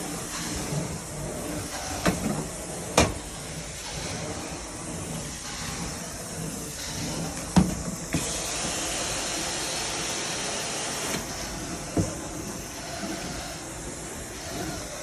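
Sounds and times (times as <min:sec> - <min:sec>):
vacuum cleaner running over carpet: 0:00.0 - 0:15.0
vacuum cleaner knocks: 0:07.6 - 0:08.8, 0:11.9 - 0:12.3.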